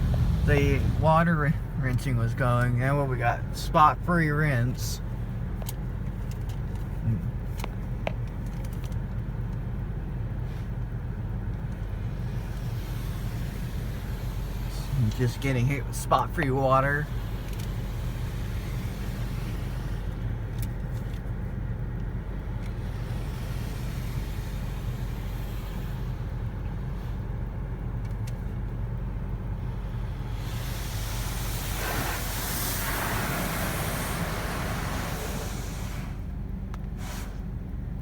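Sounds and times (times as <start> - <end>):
steady low hum: 0.0 - 38.0
water spray hissing on car: 12.1 - 20.1, 22.8 - 27.2, 29.9 - 36.3.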